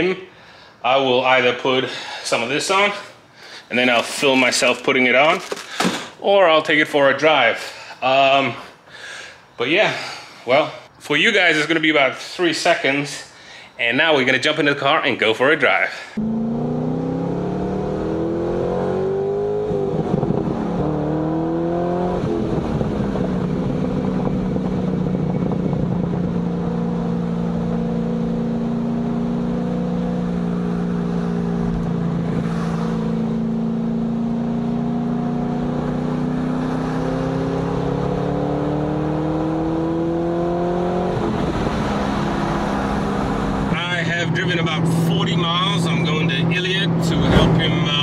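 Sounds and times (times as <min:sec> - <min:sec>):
road and tyre noise: 0:00.0 - 0:06.2, 0:16.1 - 0:48.0
car engine pulling through gears: 0:16.2 - 0:48.0.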